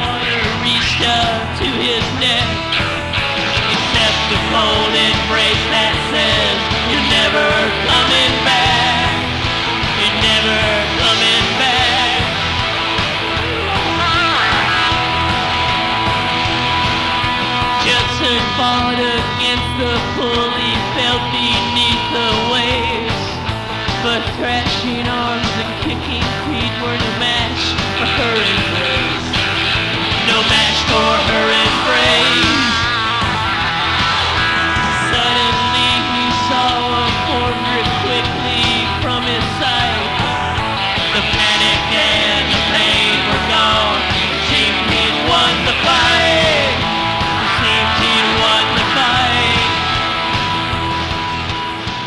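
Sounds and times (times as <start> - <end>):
drums: 0.0 - 52.0
electric guitar lead lines: 0.0 - 52.0
rock band playing live: 0.0 - 52.0.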